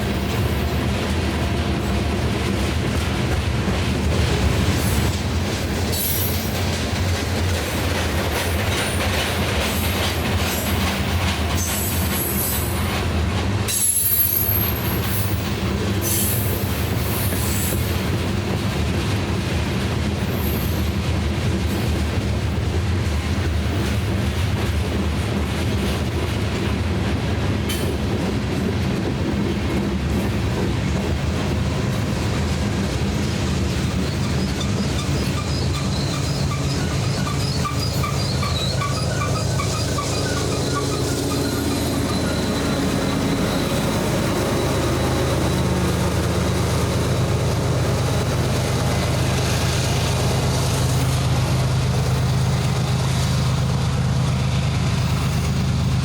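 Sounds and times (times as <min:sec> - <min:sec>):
train wheels rumbling on rail: 0:00.0 - 0:56.0
wheel squeals: 0:33.9 - 0:45.7.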